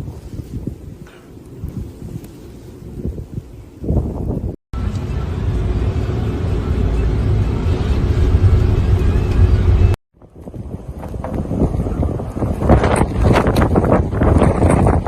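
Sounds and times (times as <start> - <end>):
vehicle driving rumble: 4.8 - 15.0.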